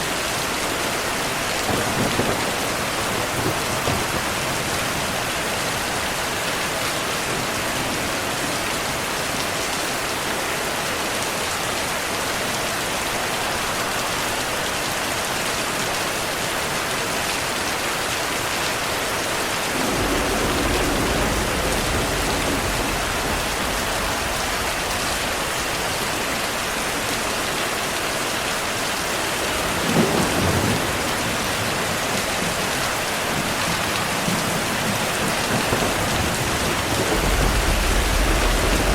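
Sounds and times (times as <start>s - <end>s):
heavy rainfall: 0.0s - 38.9s
rolling thunder: 1.2s - 9.0s, 19.1s - 27.6s, 29.3s - 38.9s
sharp thunderclap: 1.6s - 5.3s, 19.6s - 27.0s, 29.5s - 32.6s, 33.3s - 38.9s.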